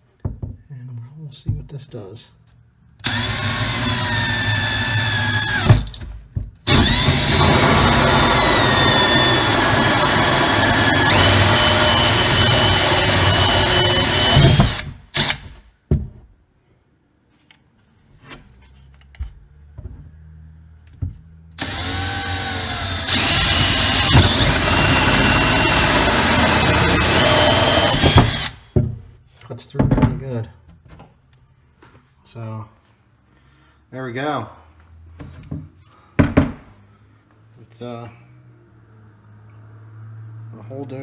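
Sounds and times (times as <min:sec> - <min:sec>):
cordless drill motor whining: 0:03.0 - 0:05.9, 0:06.7 - 0:15.4, 0:21.6 - 0:28.6.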